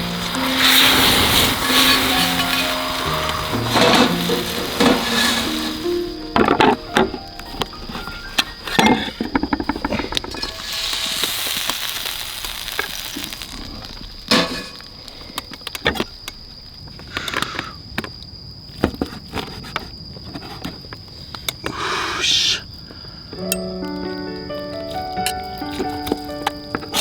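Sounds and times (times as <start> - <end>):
meat sizzling in a pan: 0.0 - 14.9
crackles: 0.0 - 27.0.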